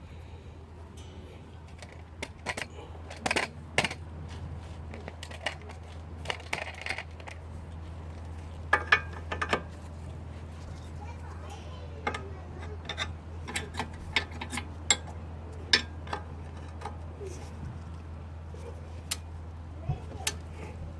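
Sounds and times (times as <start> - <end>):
steady low hum: 0.0 - 20.9
metallic clinks and knocks: 1.0 - 4.2, 8.1 - 9.8, 12.0 - 17.1.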